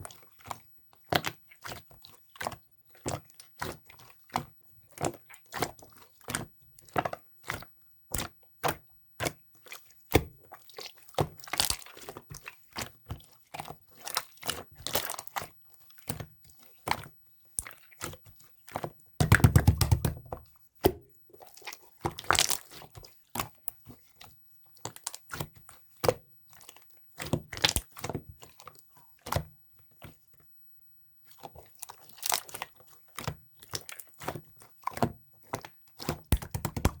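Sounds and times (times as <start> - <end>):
slime crackling and popping: 22.2 - 22.8, 27.6 - 27.9, 36.3 - 37.0.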